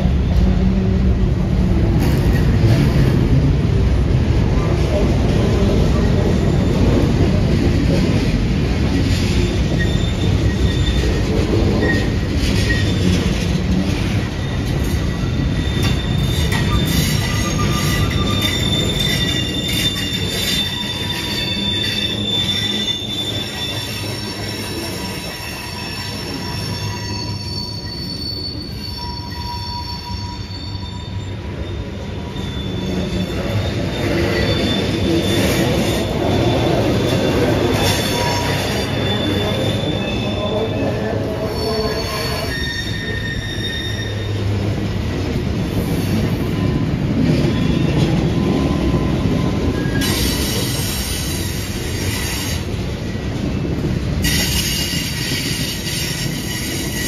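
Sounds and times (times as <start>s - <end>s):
wheels squealing: 8.9s - 44.6s, 45.7s - 52.7s.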